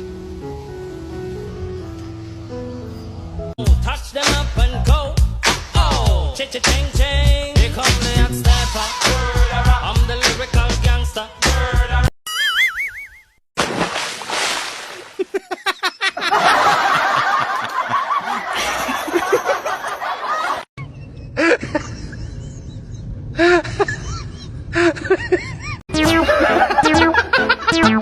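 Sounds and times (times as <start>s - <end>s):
people laughing and snickering: 15.2s - 27.7s.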